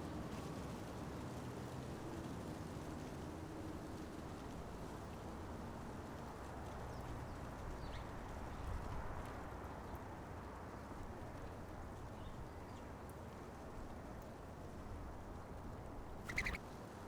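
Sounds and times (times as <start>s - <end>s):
light ticks: 6.0s - 16.4s
faint bird chirps: 16.2s - 16.6s.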